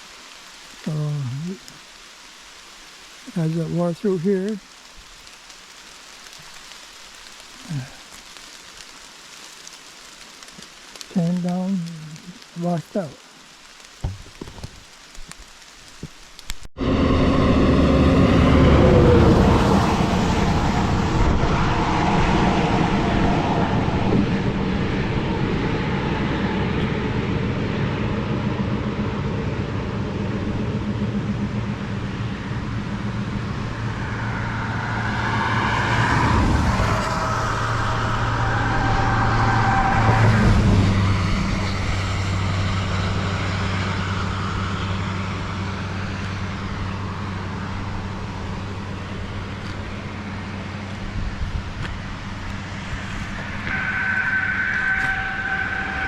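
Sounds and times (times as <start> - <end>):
road noise: 0.0 - 56.0
car engine hum: 16.8 - 56.0.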